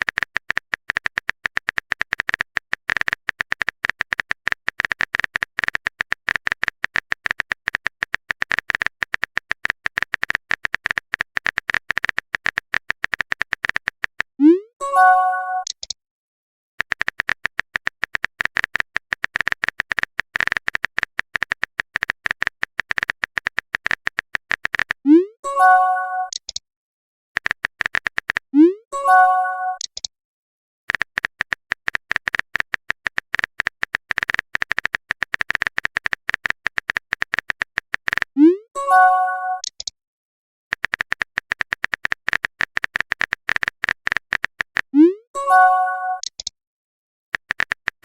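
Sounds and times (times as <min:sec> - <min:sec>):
rapid typing clicks: 0:00.0 - 0:14.4, 0:16.8 - 0:25.0, 0:27.4 - 0:28.5, 0:30.9 - 0:38.4, 0:40.7 - 0:45.0, 0:47.4 - 0:48.0.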